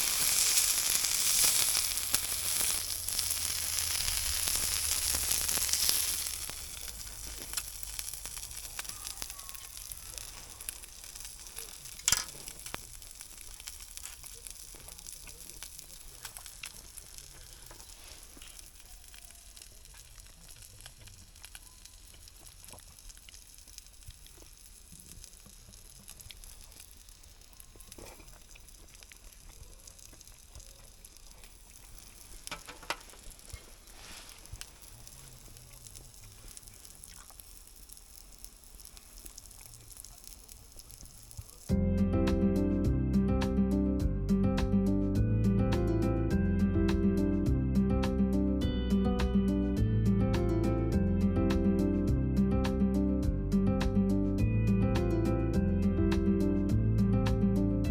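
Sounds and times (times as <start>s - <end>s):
food sizzling in a pan: 0.0s - 44.0s.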